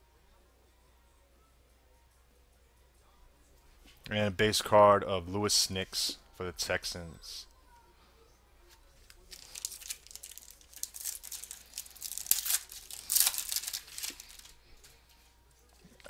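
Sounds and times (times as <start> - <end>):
plastic packaging rustling: 9.1 - 15.0.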